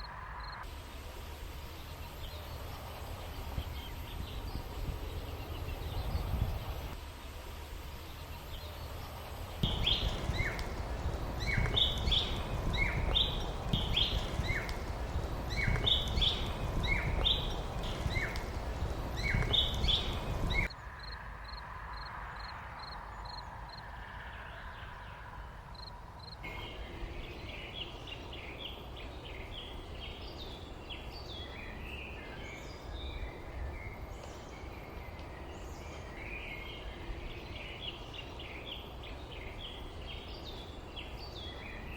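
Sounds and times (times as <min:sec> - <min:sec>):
busy mixed bird chirping: 0:00.0 - 0:07.0, 0:07.6 - 0:22.1, 0:23.0 - 0:41.9
low rumble: 0:08.6 - 0:20.7.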